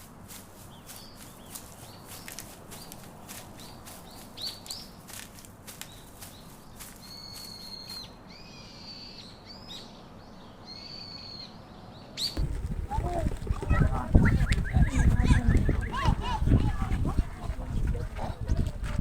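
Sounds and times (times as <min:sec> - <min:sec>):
faint outdoor background noise: 0:00.0 - 0:19.0
wild birds calling: 0:12.4 - 0:18.6.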